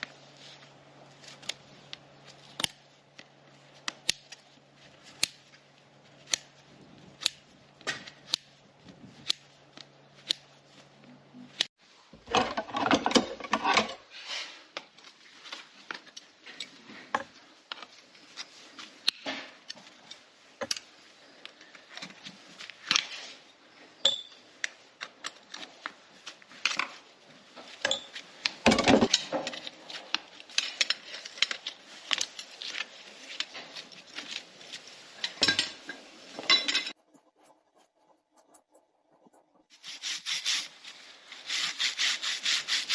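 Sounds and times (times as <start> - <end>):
hoof trimming tools snipping: 1.2 - 10.6
rough cutting and scraping of hoof: 36.9 - 42.9.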